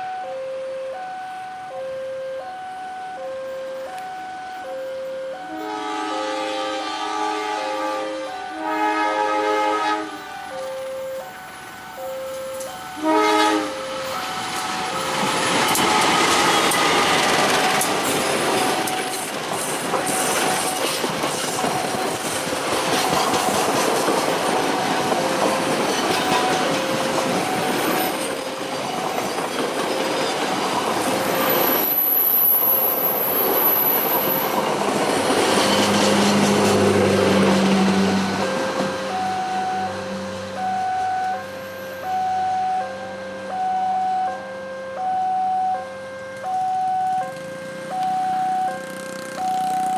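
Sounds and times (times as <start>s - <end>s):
two-tone crossing bell: 0.0s - 32.9s, 40.6s - 49.9s
train horn blast: 5.5s - 10.5s, 12.9s - 18.9s, 25.9s - 27.0s
high wheel squeal: 9.6s - 40.0s, 47.8s - 49.9s
train wheels clattering on rails: 11.6s - 40.8s.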